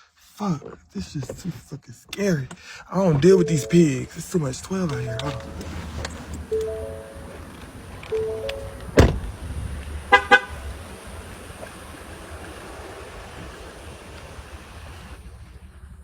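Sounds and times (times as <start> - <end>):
car door slamming: 8.7 - 9.3.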